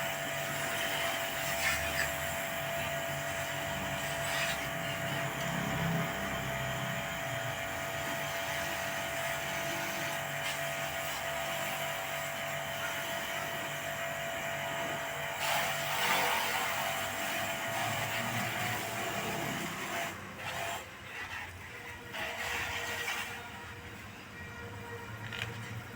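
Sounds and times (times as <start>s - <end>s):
pressure washer hissing and whining: 0.0s - 25.9s.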